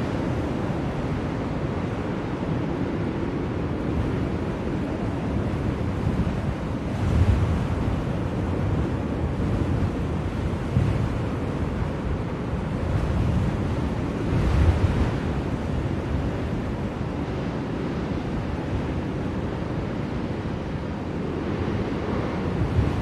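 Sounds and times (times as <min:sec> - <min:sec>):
blizzard wind blowing: 0:00.0 - 0:23.0.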